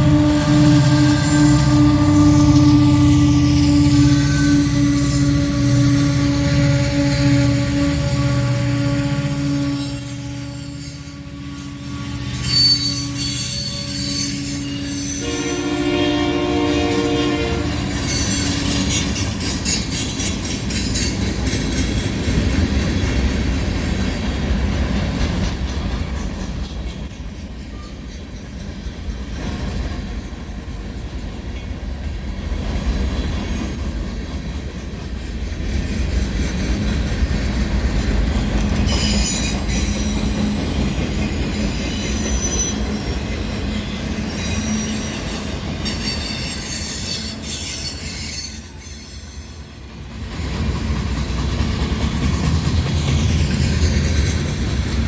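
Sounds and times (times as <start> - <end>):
high-pitched wheel squeal: 0.0 - 15.5, 17.7 - 20.1, 32.6 - 50.7
freight train rumbling past: 0.0 - 55.0.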